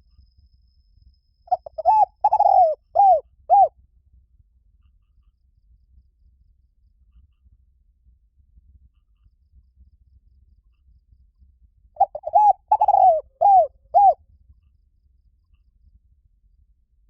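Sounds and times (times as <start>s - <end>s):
dove cooing: 1.5s - 3.7s, 12.0s - 14.2s.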